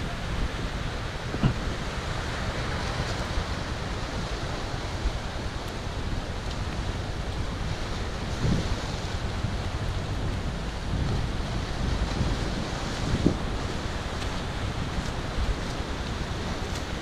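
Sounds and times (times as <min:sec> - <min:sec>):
sea rushing: 0:00.0 - 0:17.0
wind buffeting microphone: 0:00.0 - 0:17.0.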